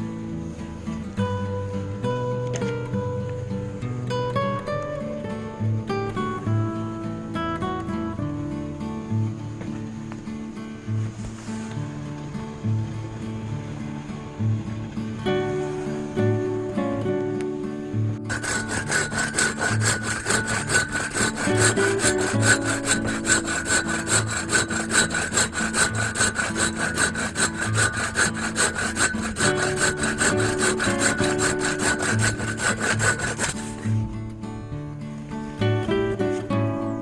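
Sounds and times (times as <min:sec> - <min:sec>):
acoustic guitar music: 0:00.0 - 0:37.0
hand saw cutting wood: 0:18.2 - 0:34.1.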